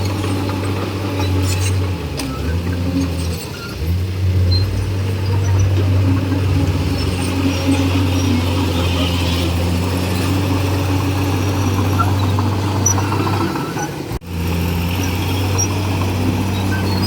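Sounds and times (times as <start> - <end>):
bulldozer diesel engine droning: 0.0 - 17.0.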